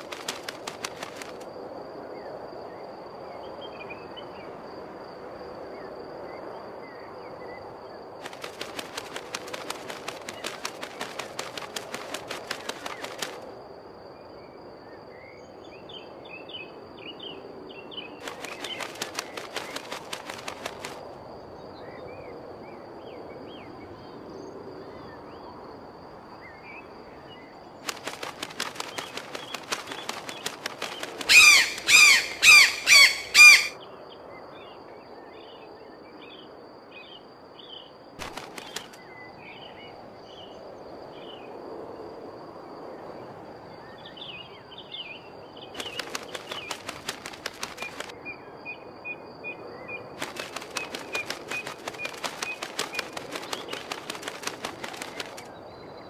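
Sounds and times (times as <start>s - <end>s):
bird wings flapping: 0.0s - 1.5s, 8.2s - 13.5s, 18.2s - 21.2s, 27.8s - 33.8s, 38.2s - 39.0s, 45.7s - 48.2s, 50.2s - 55.6s
loud bird calls: 27.9s - 33.8s
small birds chirping: 27.9s - 33.8s, 50.2s - 55.5s.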